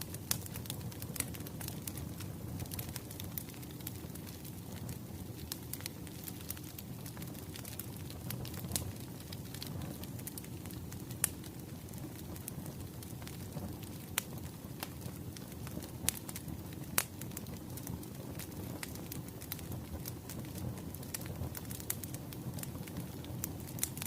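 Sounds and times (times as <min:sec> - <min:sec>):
low rumble of burning logs: 0:00.0 - 0:24.0
wood fire crackling: 0:00.0 - 0:24.0.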